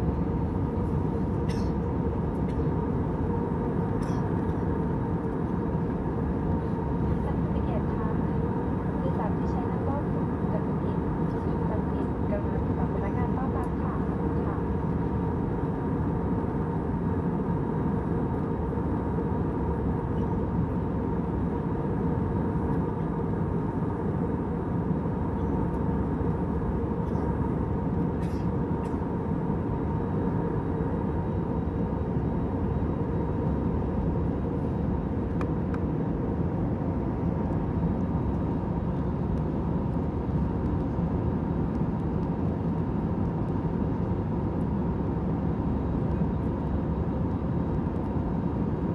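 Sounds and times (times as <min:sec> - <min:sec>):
airliner cabin engine hum: 0:00.0 - 0:48.9.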